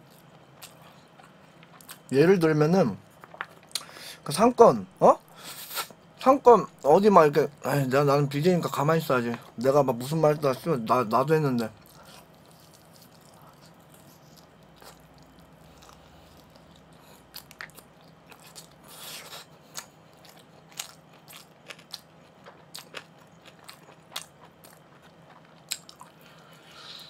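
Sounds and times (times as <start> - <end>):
man chewing meat: 0.0 - 2.1, 3.0 - 3.9, 9.3 - 27.0.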